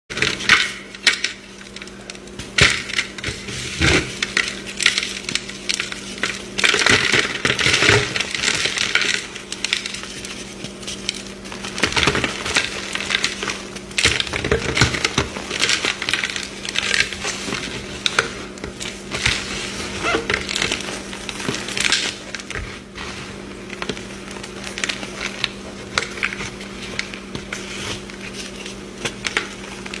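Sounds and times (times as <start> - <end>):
chalk crunching and cracking: 7.7 - 13.9.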